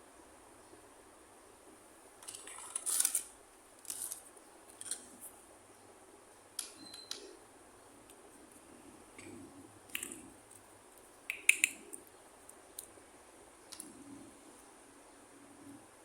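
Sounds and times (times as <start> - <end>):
plastic toy pieces rustling: 2.2 - 3.3, 3.9 - 4.2.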